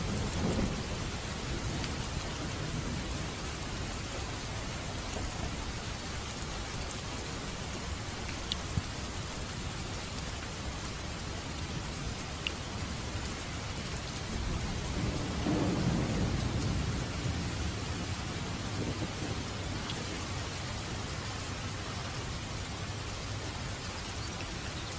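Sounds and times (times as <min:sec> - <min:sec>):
low rumble of thunder: 0:00.0 - 0:24.9
steady rain falling: 0:00.0 - 0:24.9
sharp raindrop ticks: 0:01.6 - 0:02.4, 0:08.2 - 0:09.0, 0:11.5 - 0:20.6.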